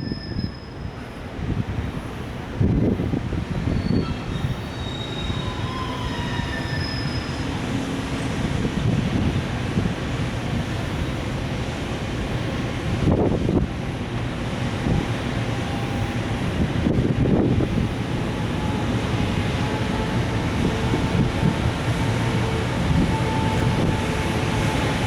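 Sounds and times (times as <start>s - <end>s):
high-pitched wheel squeals: 0.0s - 0.9s, 3.7s - 7.6s
train wagons rumbling on rails: 0.0s - 25.0s.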